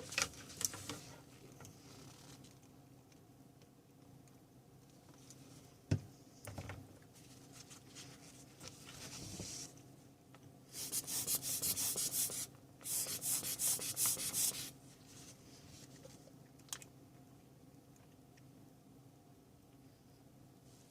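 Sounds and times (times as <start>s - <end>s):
rapid scrubbing strokes: 10.8s - 14.7s.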